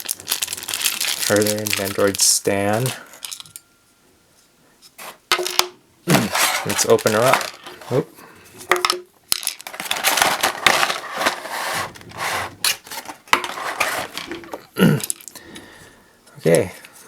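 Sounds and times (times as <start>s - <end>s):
plastic packaging crinkling: 0.0s - 3.6s, 6.1s - 8.0s, 8.8s - 15.4s.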